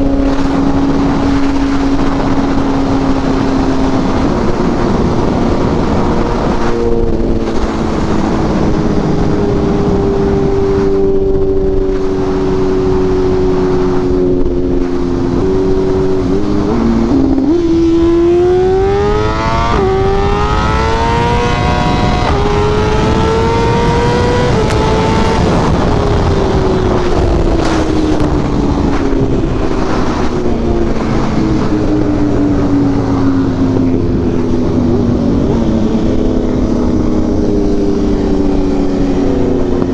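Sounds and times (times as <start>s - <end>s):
motorcycle engine accelerating: 0.0s - 39.9s
wind rushing over microphone: 0.0s - 39.9s.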